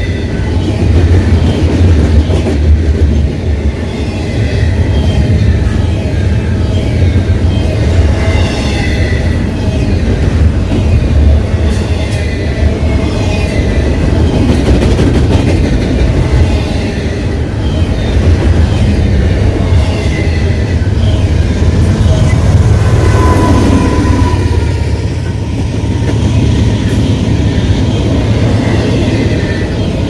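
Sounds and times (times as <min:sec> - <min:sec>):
train wheels clattering on rail: 0:00.0 - 0:30.0
wheel squeal: 0:19.8 - 0:26.8.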